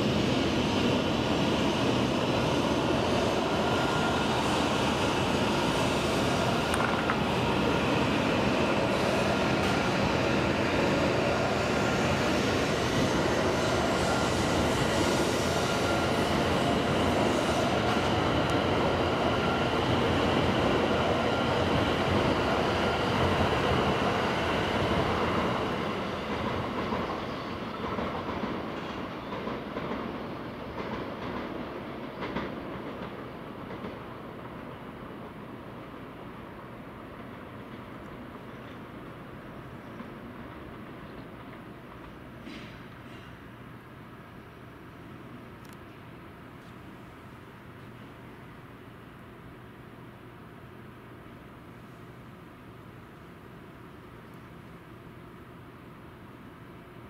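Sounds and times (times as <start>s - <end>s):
train rushing past: 0.0s - 43.3s
train high whine: 0.0s - 57.0s.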